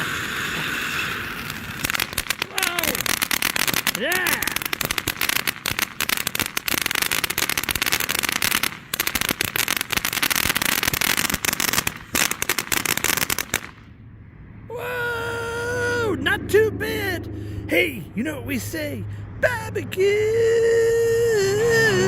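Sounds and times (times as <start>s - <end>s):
firework fountain crackling and hissing: 0.0s - 13.9s.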